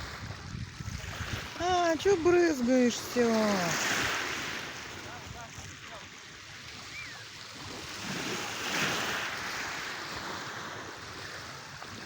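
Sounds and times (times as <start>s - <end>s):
sea waves washing ashore: 0.0s - 12.0s.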